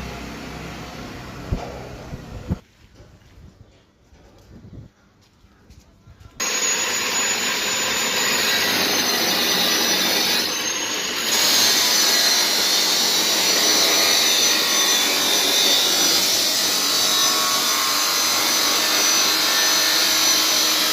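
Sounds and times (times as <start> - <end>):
power tool grinding metal: 6.4 - 20.9.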